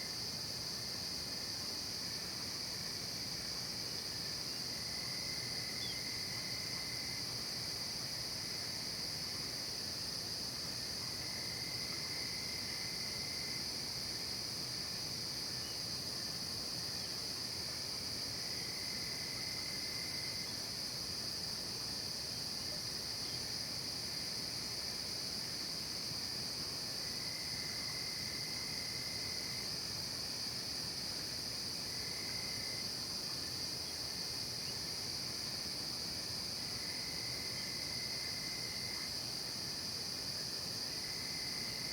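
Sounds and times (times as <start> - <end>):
lower insect trill: 0.0 - 41.9.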